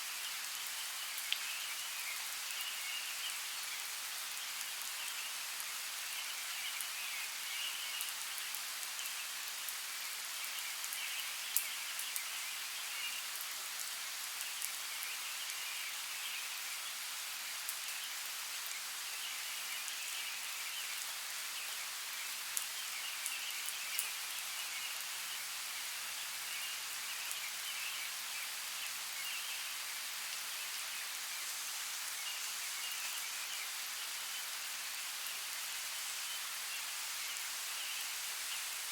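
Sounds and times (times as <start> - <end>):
hiss of running water: 0.0 - 38.9
sharp drip-like ticks: 1.2 - 1.5.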